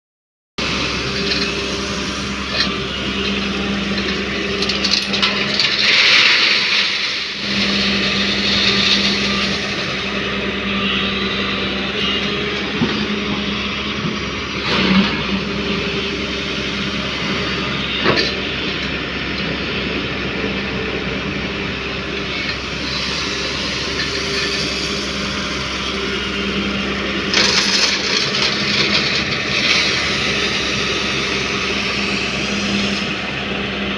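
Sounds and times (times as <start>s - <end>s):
diesel engine running: 0.6s - 33.9s
gravel pouring with rattling rush: 1.0s - 10.0s, 22.6s - 33.2s
gravel crashes: 4.7s - 9.3s.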